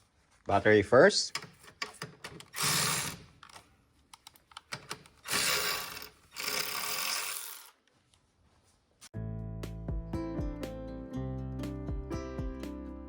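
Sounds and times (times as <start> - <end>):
ratchet wrench clicking: 2.4 - 3.2, 4.8 - 7.8.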